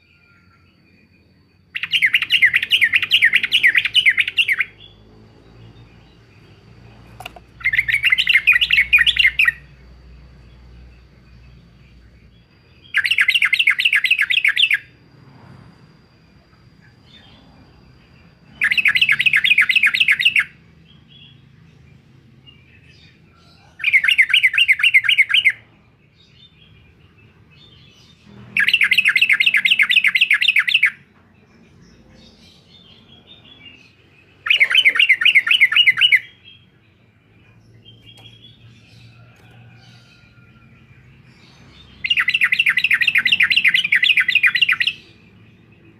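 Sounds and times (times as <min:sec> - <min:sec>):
bulbul calling: 0:07.0 - 0:09.7, 0:34.4 - 0:36.6, 0:41.4 - 0:45.2
faint bird chirps: 0:22.6 - 0:45.9.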